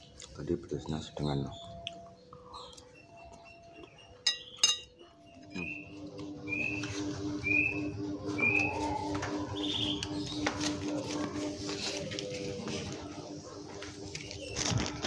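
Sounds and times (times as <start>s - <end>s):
bird chirping: 0.0s - 10.7s
pulsing low hum: 5.0s - 15.0s.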